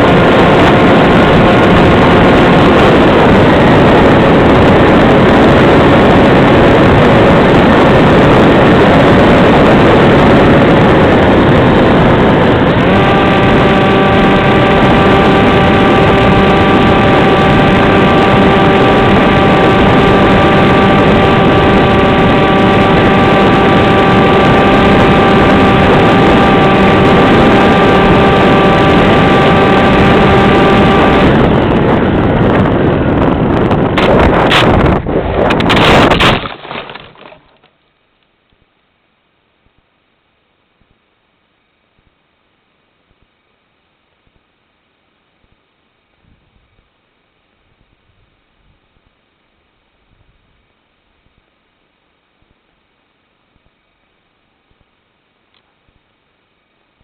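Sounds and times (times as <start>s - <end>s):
rush of air: 0.0s - 37.1s
electric motor and propeller whining: 0.0s - 37.7s.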